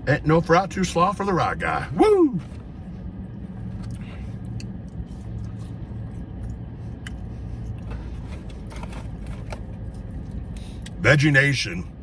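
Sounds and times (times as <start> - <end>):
low hum of car cabin: 0.0 - 12.0
person chewing fries: 2.6 - 11.0.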